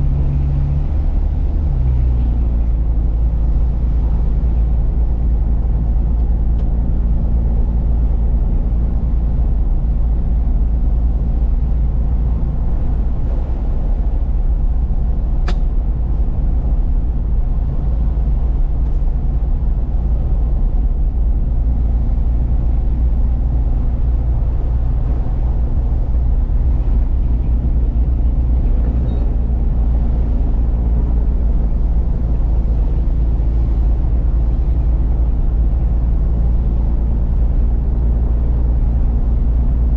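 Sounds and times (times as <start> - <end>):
road noise: 0.0 - 39.9
truck engine drone from cab: 0.0 - 39.9
sharp click: 15.4 - 15.7.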